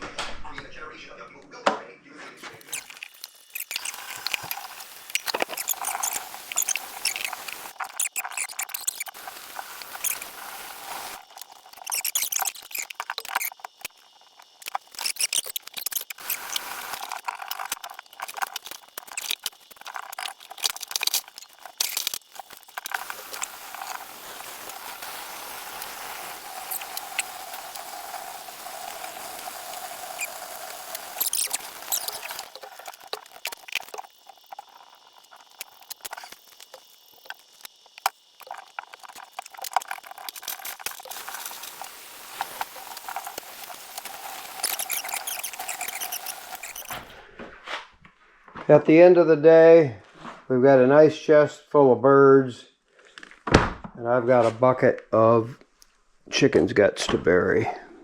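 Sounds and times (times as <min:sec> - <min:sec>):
rushing hiss: 0:02.5 - 0:13.9, 0:14.5 - 0:47.2.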